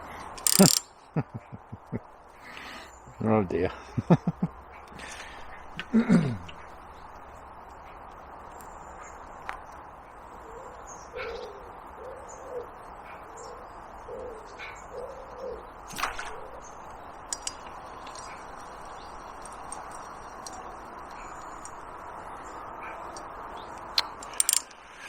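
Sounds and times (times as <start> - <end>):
sharp click: 0.4 - 0.9, 24.0 - 24.8
pigeon cooing: 10.5 - 16.6.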